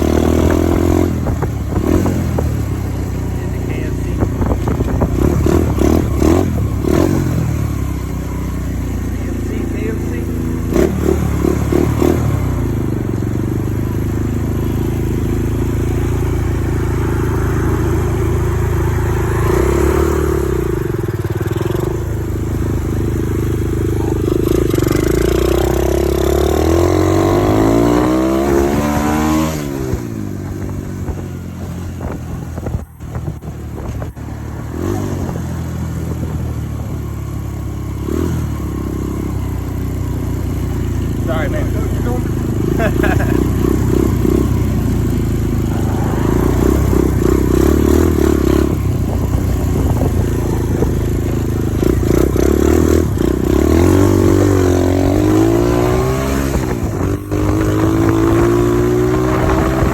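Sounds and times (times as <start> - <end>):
dirt bike engine revving: 0.0 - 31.2, 37.7 - 59.9.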